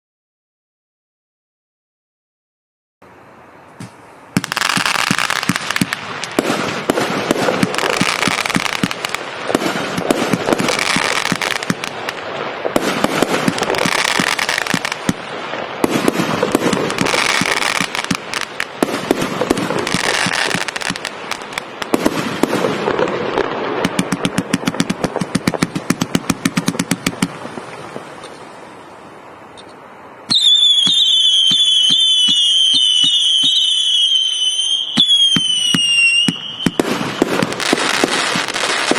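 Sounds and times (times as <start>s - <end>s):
shrill wavering firework whistles: 3.8s - 15.0s, 15.9s - 23.0s, 29.6s - 38.9s
fireworks launches and bursts: 3.8s - 38.9s.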